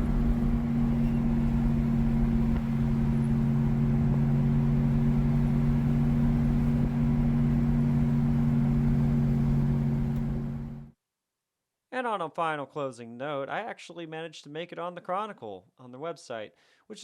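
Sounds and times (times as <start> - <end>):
vehicle engine humming: 0.0 - 10.9.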